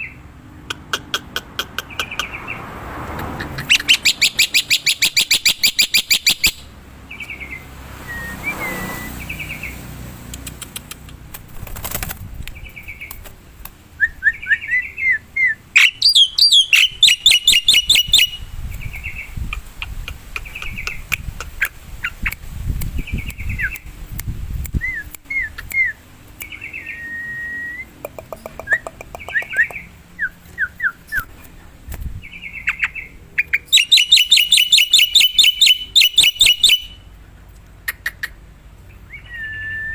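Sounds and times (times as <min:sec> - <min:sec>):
bird rapid chattering: 0:00.6 - 0:02.6, 0:03.2 - 0:06.6, 0:10.3 - 0:13.3, 0:15.8 - 0:23.8, 0:28.0 - 0:29.9, 0:32.4 - 0:37.0, 0:37.8 - 0:38.4
bird whistled notes: 0:08.0 - 0:09.5, 0:14.0 - 0:18.4, 0:33.7 - 0:37.0.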